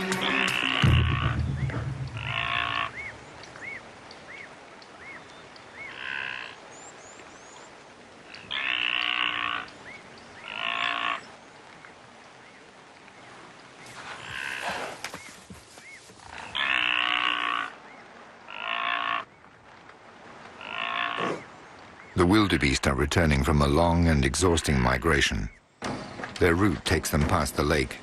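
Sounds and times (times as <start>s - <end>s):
harsh animal calls: 0.0s - 3.1s, 8.3s - 9.7s, 10.4s - 11.3s, 18.5s - 19.3s, 20.5s - 21.5s.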